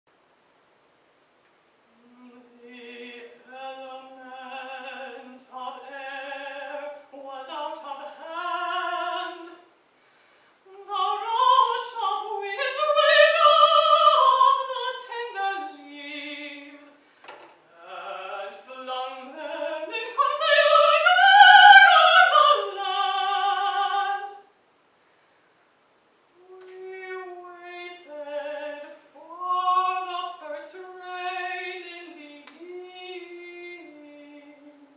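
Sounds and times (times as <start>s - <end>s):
woman singing classical song: 1.9s - 9.8s, 10.6s - 24.5s, 26.3s - 34.9s
singer breathing: 9.9s - 10.7s, 17.0s - 17.4s.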